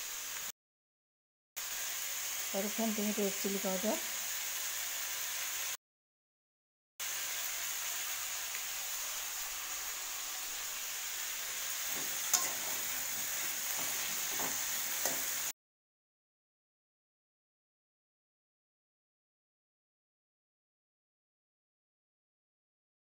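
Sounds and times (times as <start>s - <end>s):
vegetables sizzling in hot oil: 0.0s - 0.5s, 1.6s - 5.8s, 7.0s - 15.6s
spatula scraping pan: 11.3s - 15.5s
metal spatula clinking on pan: 11.9s - 13.0s, 13.8s - 15.4s.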